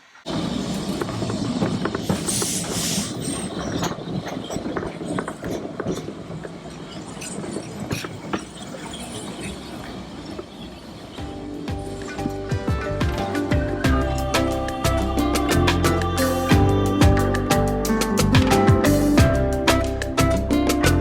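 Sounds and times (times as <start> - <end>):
loud hiss: 0.0 - 3.6
train rumbling on rails: 0.0 - 17.3.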